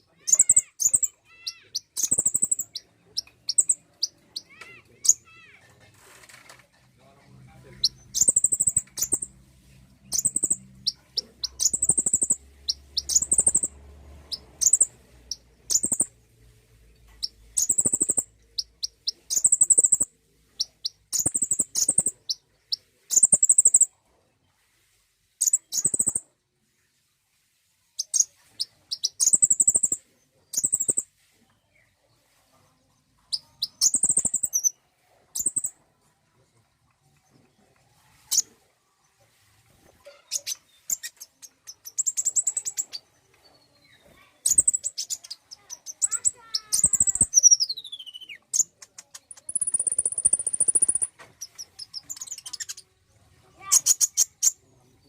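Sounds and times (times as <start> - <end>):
bird chirping and trilling: 0.2 - 5.6, 7.8 - 9.3, 10.0 - 16.1, 17.2 - 22.4, 23.1 - 23.9, 25.4 - 26.2, 28.0 - 31.0, 33.3 - 34.8, 35.4 - 35.7, 40.1 - 52.8, 53.6 - 54.6.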